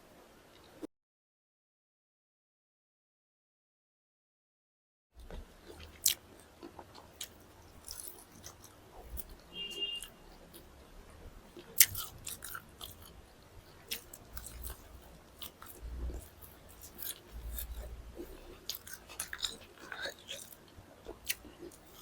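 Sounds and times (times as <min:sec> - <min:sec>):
chewing and biting food: 0:05.2 - 0:09.4, 0:11.5 - 0:22.0
wet mouth clicks: 0:11.6 - 0:13.2.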